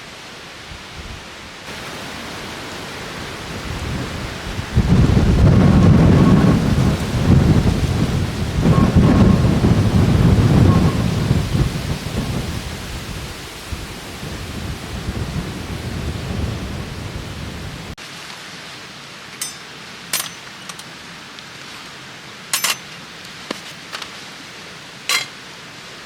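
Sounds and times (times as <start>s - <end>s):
wind gusting against microphone: 0.6s - 18.0s.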